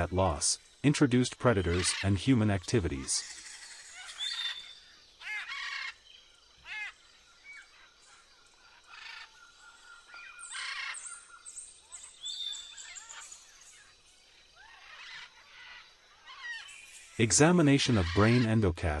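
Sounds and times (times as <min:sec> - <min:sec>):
birds chirping and whistling: 0:03.6 - 0:14.0, 0:14.6 - 0:18.6.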